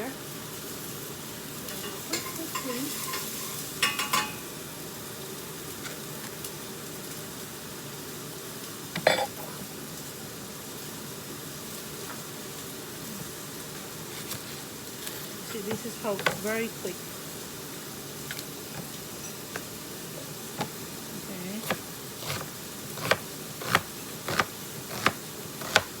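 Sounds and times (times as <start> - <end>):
vegetables sizzling in hot oil: 0.0 - 26.0
utensil clinking against pot: 1.8 - 4.4.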